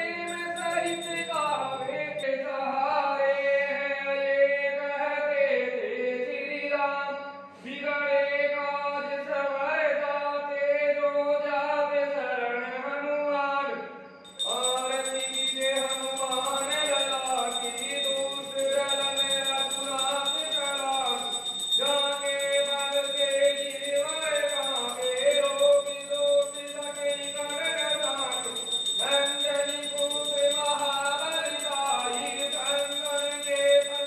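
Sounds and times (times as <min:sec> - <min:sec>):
bells ringing: 0:00.0 - 0:02.3, 0:14.2 - 0:34.0.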